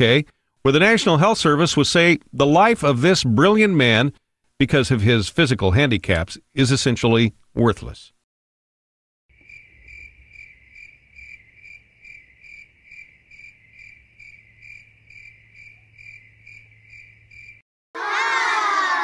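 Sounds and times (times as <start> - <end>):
crickets chirping: 9.3 - 17.6.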